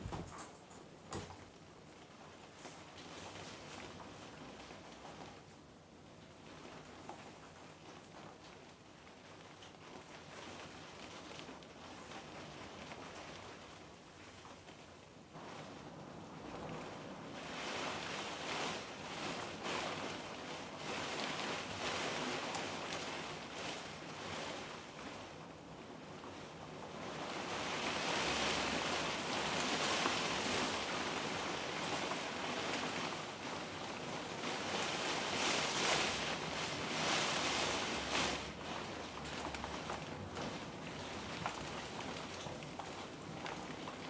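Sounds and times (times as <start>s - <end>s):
heavy rain downpour: 15.3s - 44.0s.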